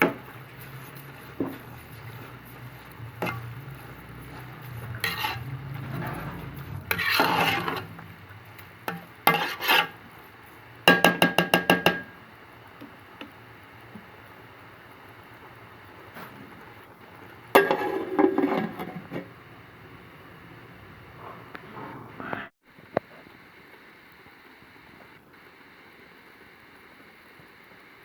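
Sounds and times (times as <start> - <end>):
metal utensils scraping a pot: 0.0 - 11.1, 17.5 - 19.3.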